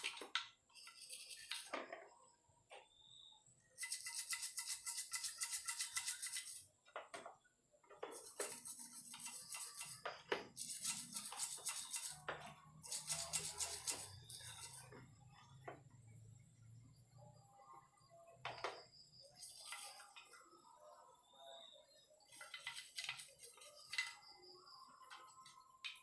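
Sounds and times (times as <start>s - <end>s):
stiff brush scrubbing metal: 8.1s - 14.9s.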